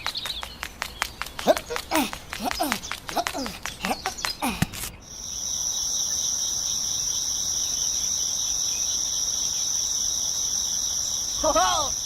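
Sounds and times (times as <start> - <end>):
high-pitched insect trill: 5.0 - 12.0.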